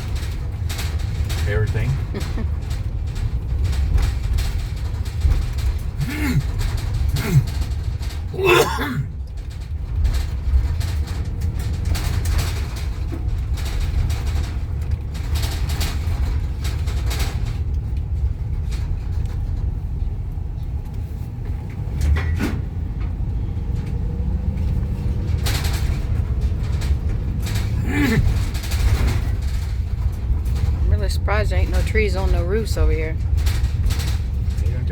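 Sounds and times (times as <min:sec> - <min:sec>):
loose objects rattling: 0:00.0 - 0:19.0
car cabin road rumble: 0:00.0 - 0:34.9.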